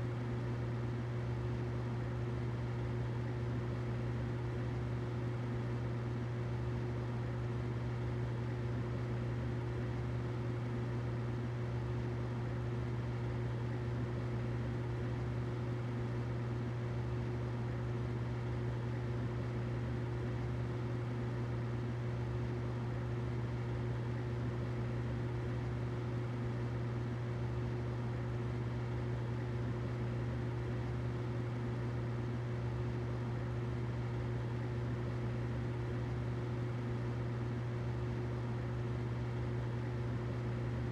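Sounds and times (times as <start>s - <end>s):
humidifier humming: 0.0s - 40.9s.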